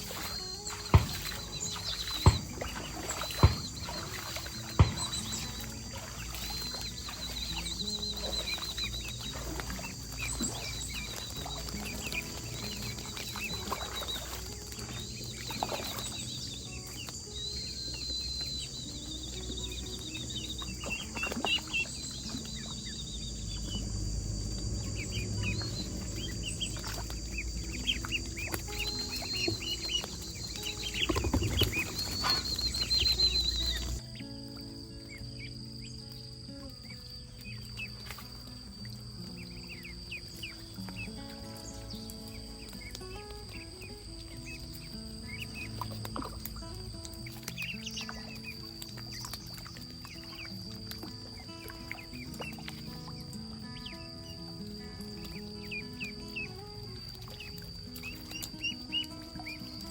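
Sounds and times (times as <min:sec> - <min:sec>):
chickens pecking taps: 0:00.0 - 0:34.0, 0:37.4 - 0:53.0
chickens clucking: 0:00.0 - 0:34.1
high chirps: 0:00.0 - 0:59.9.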